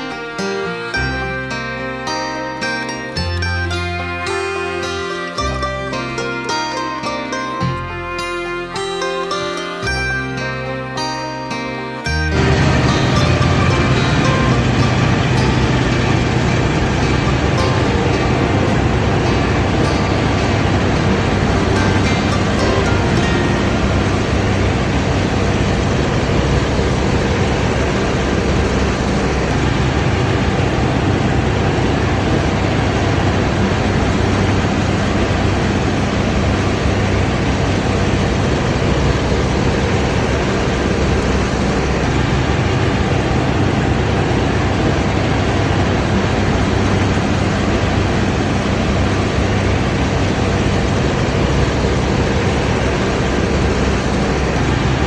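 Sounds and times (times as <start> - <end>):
diesel engine running: 0.0 - 10.2, 12.1 - 55.0
threshing machinery running: 12.4 - 55.0.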